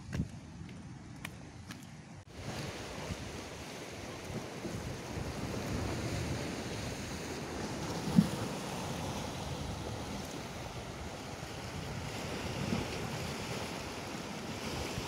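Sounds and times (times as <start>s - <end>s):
surf washing on rocky shore: 2.3s - 15.0s
wind on microphone: 2.3s - 15.0s.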